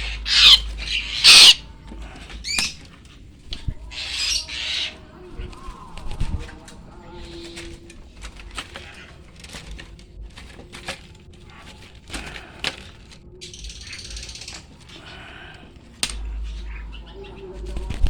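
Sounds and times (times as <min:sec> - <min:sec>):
high bird call: 0:00.0 - 0:01.7, 0:03.9 - 0:05.0
rapid bird chatter: 0:00.0 - 0:18.0.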